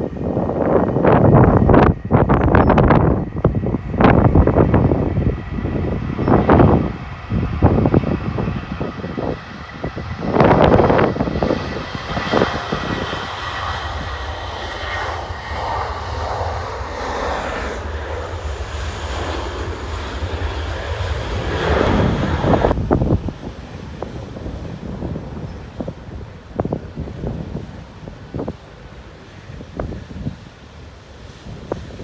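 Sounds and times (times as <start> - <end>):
jet engines rumbling: 0.0 - 32.0
wind buffeting microphone: 0.0 - 32.0.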